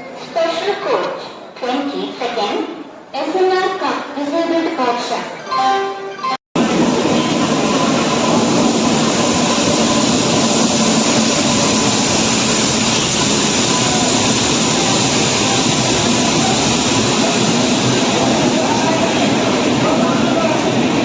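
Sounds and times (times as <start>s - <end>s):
passenger train rumbling past: 6.6s - 21.0s.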